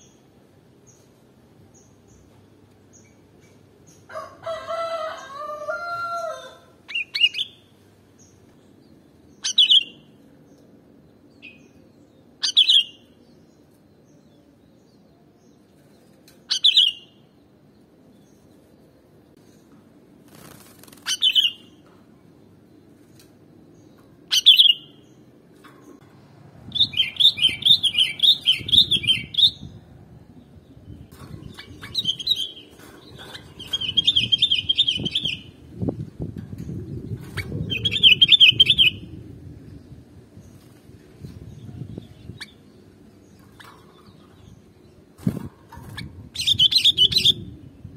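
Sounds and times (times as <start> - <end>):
rooster crowing: 4.1 - 6.8.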